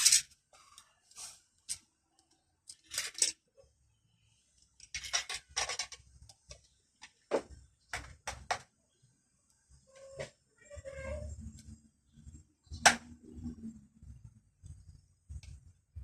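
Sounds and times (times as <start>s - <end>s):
hard objects clattering and scraping: 0.0s - 1.8s, 4.8s - 8.5s.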